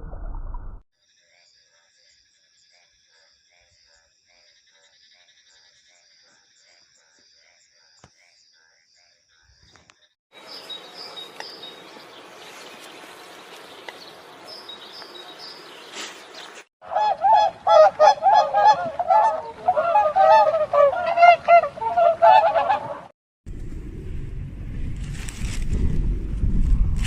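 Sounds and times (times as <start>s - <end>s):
high bird chirps: 10.4s - 16.6s
geese honking: 10.4s - 23.1s.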